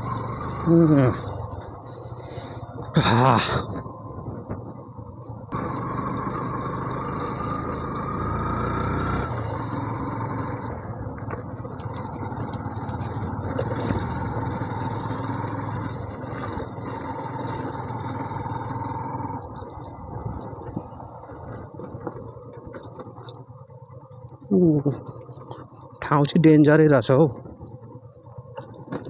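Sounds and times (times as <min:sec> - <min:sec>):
motorcycle engine: 0:00.0 - 0:29.0
clicks and rattles: 0:11.2 - 0:14.1, 0:19.3 - 0:26.4, 0:27.3 - 0:29.0.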